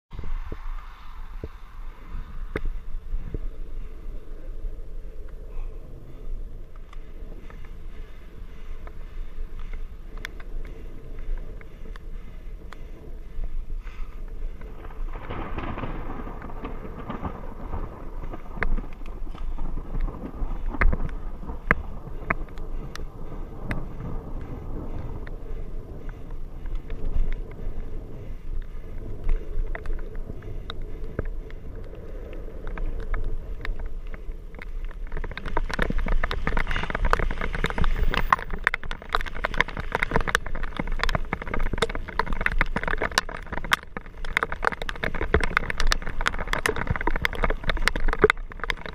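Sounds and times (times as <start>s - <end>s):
raindrops hitting camera: 0.1s - 48.9s
low thunder rumble: 10.8s - 42.2s.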